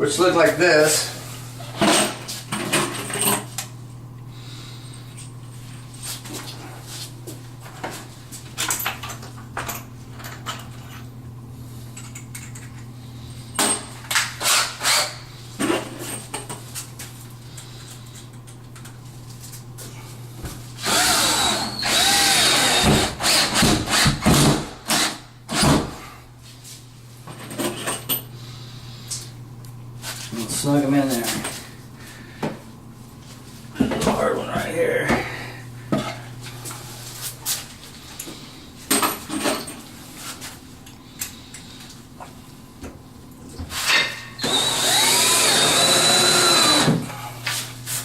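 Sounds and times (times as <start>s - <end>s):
power drill driving screws: 14.4s - 15.2s, 20.8s - 25.8s, 44.4s - 47.0s.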